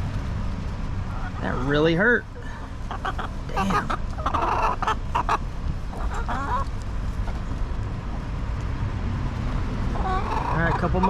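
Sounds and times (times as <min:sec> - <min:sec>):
steady low rumble: 0:00.0 - 0:10.0
chicken call: 0:02.9 - 0:05.4.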